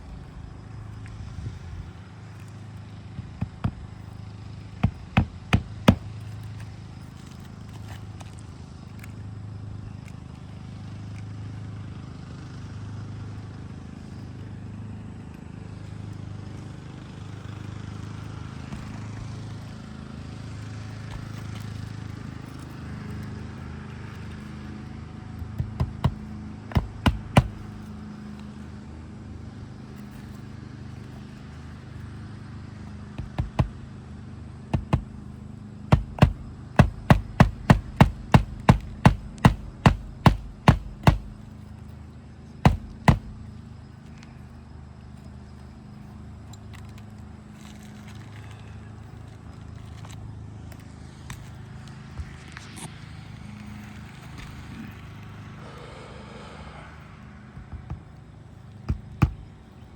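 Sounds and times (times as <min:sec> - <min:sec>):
hammer striking nails: 0:04.8 - 0:06.2, 0:25.6 - 0:27.8, 0:33.2 - 0:33.8, 0:34.8 - 0:35.2, 0:35.9 - 0:41.5, 0:42.6 - 0:43.5, 0:58.9 - 0:59.5.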